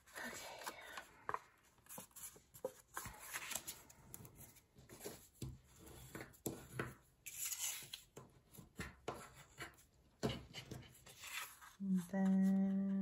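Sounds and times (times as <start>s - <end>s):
paper rustling: 10.8s - 12.8s.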